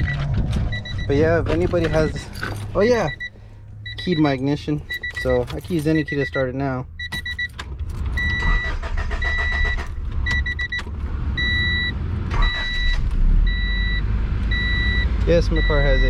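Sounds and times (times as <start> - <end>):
dashboard warning chime: 0.0 - 7.6, 8.2 - 16.0
car engine rumbling: 0.0 - 16.0
car engine starting: 0.0 - 16.0.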